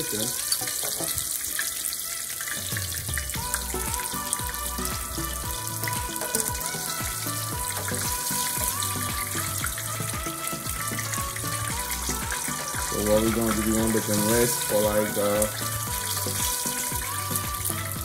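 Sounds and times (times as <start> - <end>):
background music: 0.0 - 18.0
fish sizzling in hot oil: 0.0 - 18.0.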